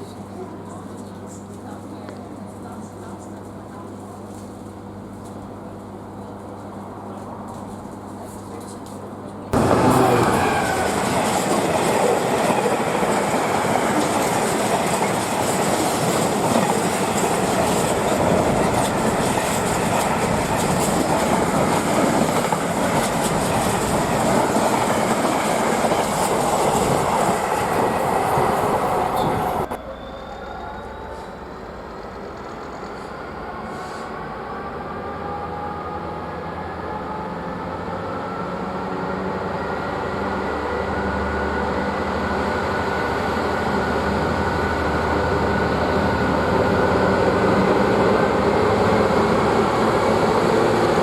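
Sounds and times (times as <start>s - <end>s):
train wheels on rails: 6.3s - 34.6s.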